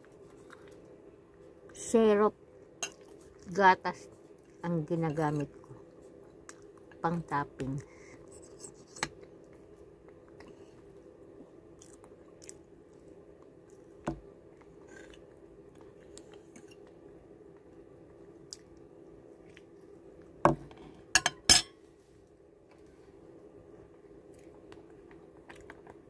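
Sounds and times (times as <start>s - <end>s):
faint chewing: 0.0s - 1.8s, 5.4s - 7.0s, 7.8s - 20.3s, 23.8s - 26.0s
low steady hum: 0.0s - 26.0s.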